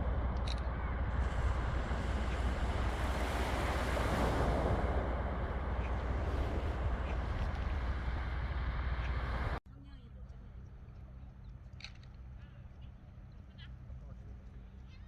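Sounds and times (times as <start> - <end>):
sea surf rushing: 0.0 - 9.6
wind buffeting microphone: 0.0 - 9.6.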